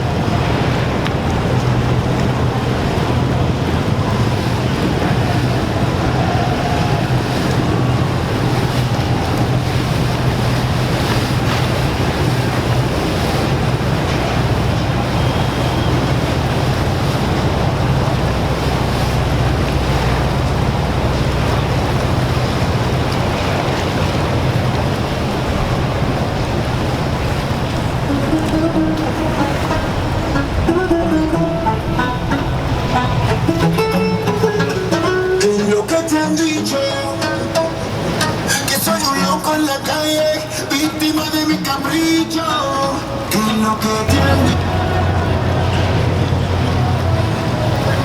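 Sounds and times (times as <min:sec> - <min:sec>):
wind buffeting microphone: 0:00.0 - 0:35.3
boat engines droning: 0:00.0 - 0:48.0
rushing water: 0:00.0 - 0:48.0.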